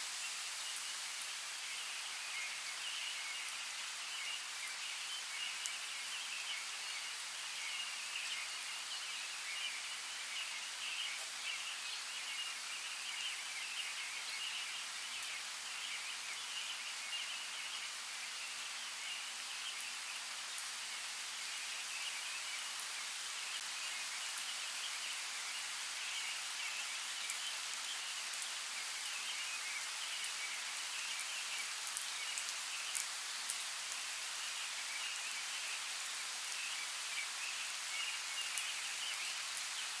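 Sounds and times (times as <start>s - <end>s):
steady rain: 0.0s - 40.0s.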